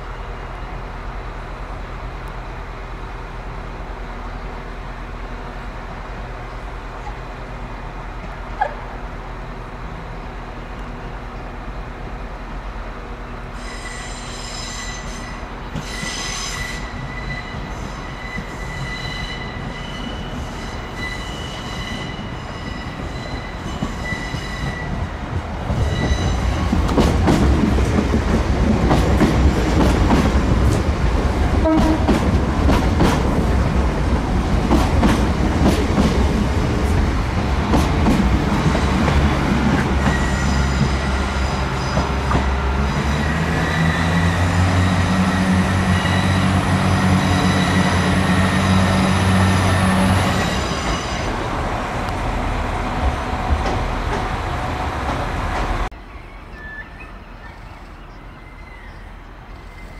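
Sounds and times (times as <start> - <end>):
train rumbling past: 0.0 - 59.9
train wheel squeal: 13.5 - 26.7, 39.8 - 51.5, 56.2 - 59.9.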